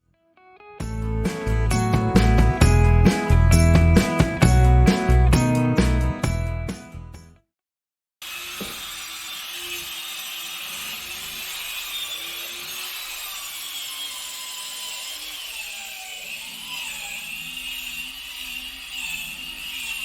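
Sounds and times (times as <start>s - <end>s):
angle grinder grinding steel: 8.2s - 20.0s.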